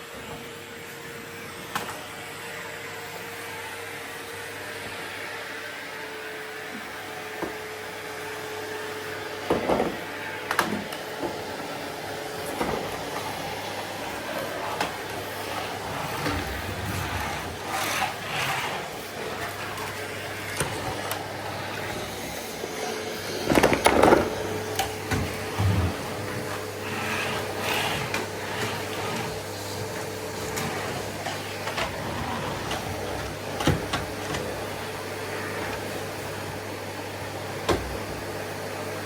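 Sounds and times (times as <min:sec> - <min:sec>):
vacuum cleaner running: 0:00.0 - 0:39.0
hose knocking against furniture: 0:23.5 - 0:24.3.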